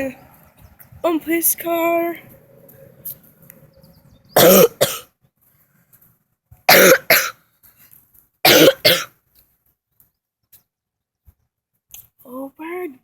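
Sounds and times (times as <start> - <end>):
person coughing: 4.4 - 5.1, 6.7 - 7.4, 8.5 - 9.1.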